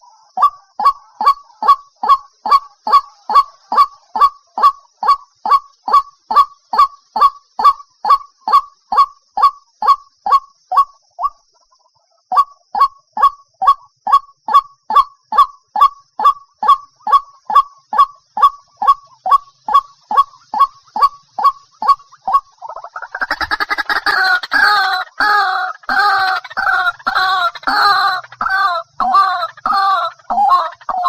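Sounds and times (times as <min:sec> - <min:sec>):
waterhen calling: 0:00.0 - 0:11.4, 0:14.5 - 0:31.0.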